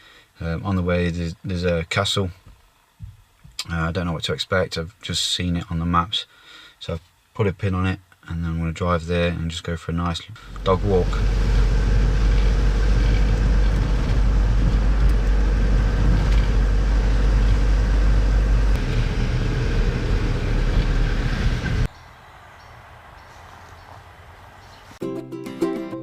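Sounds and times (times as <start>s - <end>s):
van engine and road noise: 10.4s - 25.0s.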